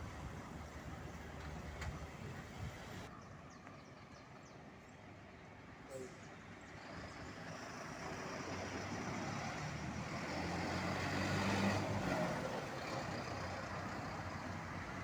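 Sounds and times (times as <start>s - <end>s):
truck engine passing: 7.4s - 15.0s.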